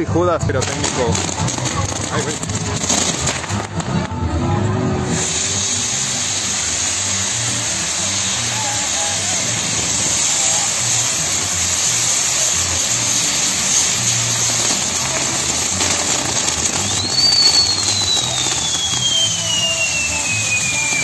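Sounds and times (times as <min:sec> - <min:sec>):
firework fountain hissing: 0:00.0 - 0:04.2, 0:04.9 - 0:21.0
whistling firework: 0:05.2 - 0:21.0.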